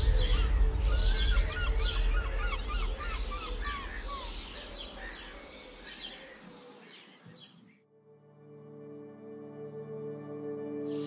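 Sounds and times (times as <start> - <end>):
low rumble: 0.0 - 5.4
songbirds chirping: 0.0 - 7.9, 10.3 - 11.0.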